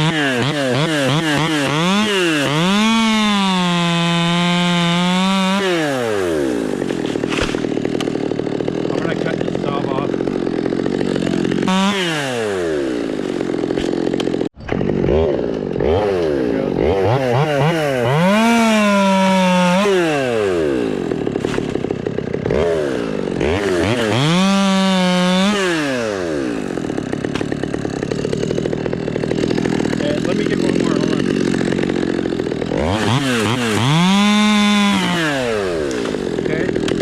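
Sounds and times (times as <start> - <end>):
chainsaw revving: 0.0 - 37.0.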